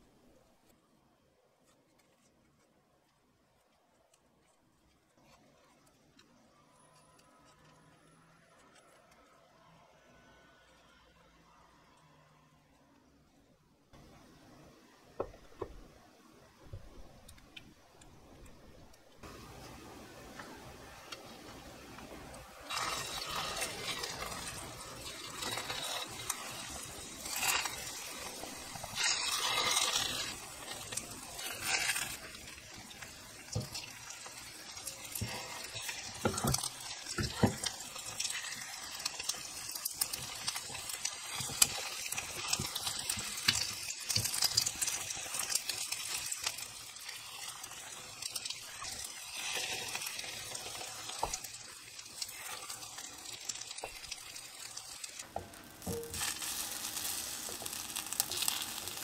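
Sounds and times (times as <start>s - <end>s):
food sizzling in hot oil: 18.2s - 59.0s
chopsticks tapping a pan: 55.4s - 59.0s.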